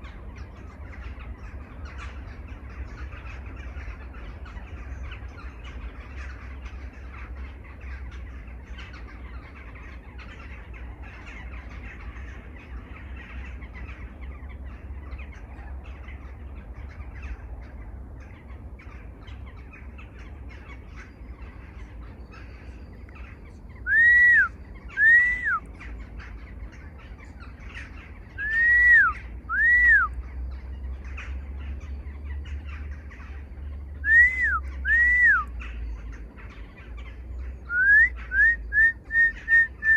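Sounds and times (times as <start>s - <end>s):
birds chattering chorus: 0.0s - 39.9s
bird two-note whistled call: 28.4s - 30.1s, 34.0s - 35.5s.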